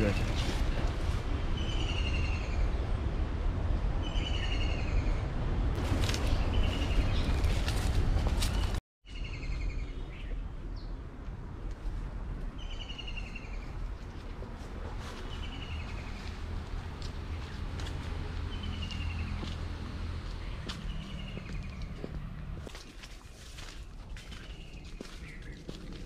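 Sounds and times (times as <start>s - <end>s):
steady low rumble: 13.4s - 26.0s.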